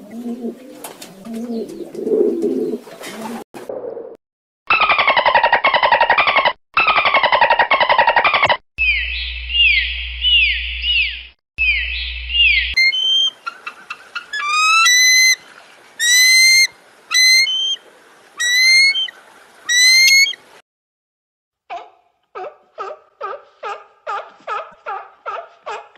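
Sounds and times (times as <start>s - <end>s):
rising whistled calls: 8.2s - 15.4s, 16.0s - 17.8s, 18.4s - 20.4s.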